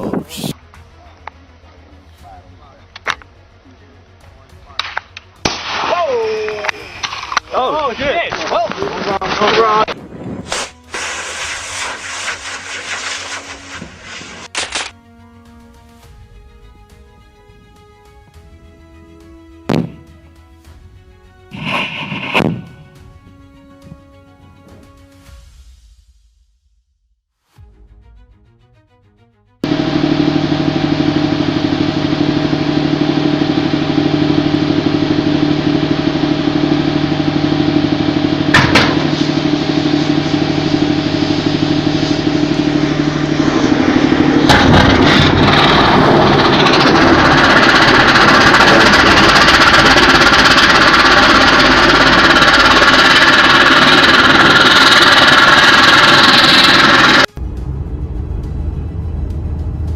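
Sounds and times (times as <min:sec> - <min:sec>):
loud noisy rushing: 0:06.9 - 0:14.5, 0:29.6 - 0:59.9
engine humming: 0:11.5 - 0:20.6, 0:29.6 - 0:59.9.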